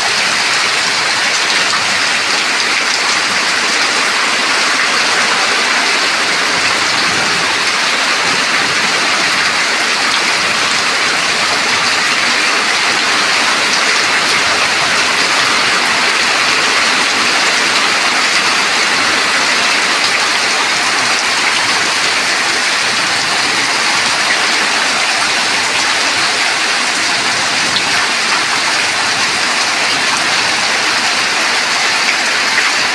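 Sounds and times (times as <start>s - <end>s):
heavy rain pouring: 0.0s - 32.9s.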